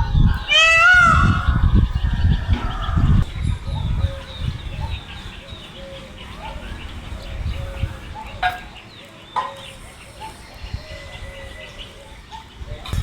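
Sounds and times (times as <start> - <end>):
peafowl calling: 0.0 - 8.8.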